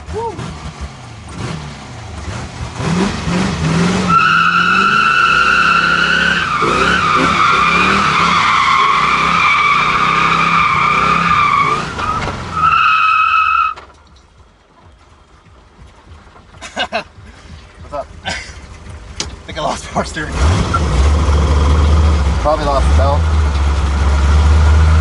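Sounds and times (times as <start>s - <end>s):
car engine revving: 0.0s - 25.0s
tyres squealing: 4.1s - 14.0s.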